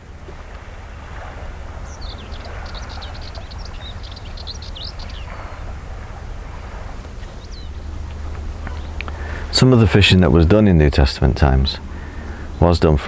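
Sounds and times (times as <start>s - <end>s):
steady low rumble: 0.0s - 13.0s
small bird chirping: 1.8s - 5.8s, 7.2s - 9.2s.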